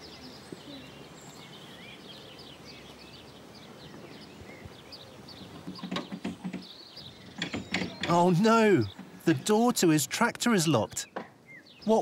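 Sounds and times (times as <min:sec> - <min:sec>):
birds chirping and singing: 0:00.0 - 0:12.0
short knocks or clatters: 0:05.6 - 0:06.7, 0:07.3 - 0:08.3.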